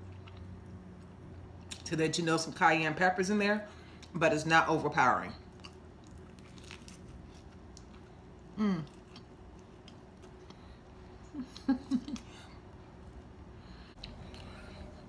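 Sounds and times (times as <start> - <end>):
woman chewing crispy food: 0.0 - 1.9, 5.4 - 12.4, 14.0 - 15.0
woman humming mm: 8.6 - 9.0.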